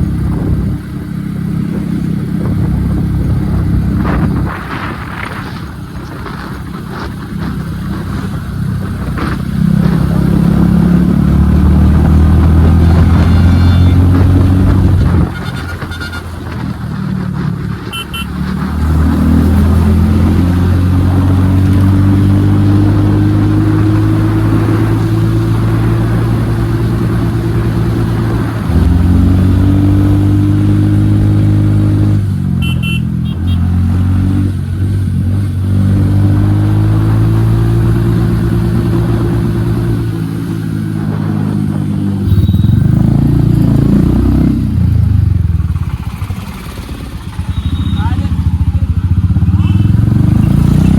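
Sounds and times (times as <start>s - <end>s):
motorcycle engine under load: 36.6s - 50.9s.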